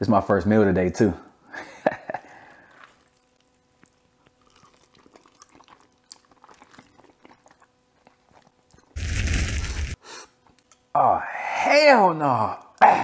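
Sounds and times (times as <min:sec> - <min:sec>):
chewing and slurping noodles: 0:02.6 - 0:09.0
fire whoosh sound effect: 0:09.0 - 0:10.0.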